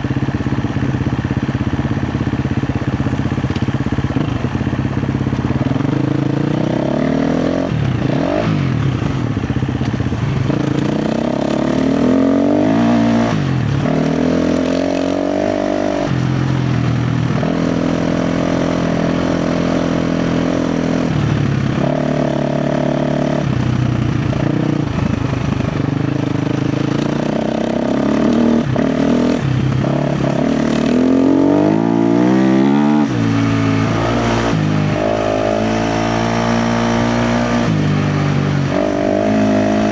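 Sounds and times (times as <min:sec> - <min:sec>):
dirt bike engine revving: 0:05.6 - 0:16.6, 0:17.3 - 0:39.9.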